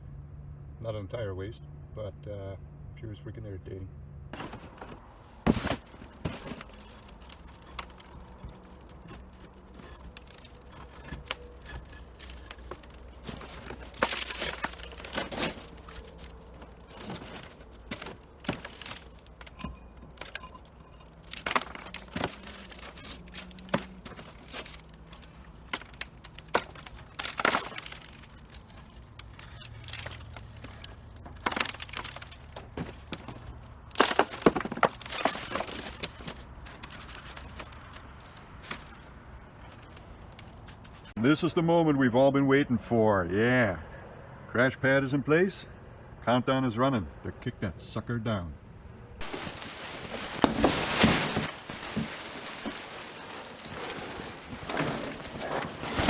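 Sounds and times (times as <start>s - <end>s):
cinder block knocks and cracks: 4.4s - 41.1s
crumbling falling debris: 4.4s - 41.2s, 49.2s - 56.0s.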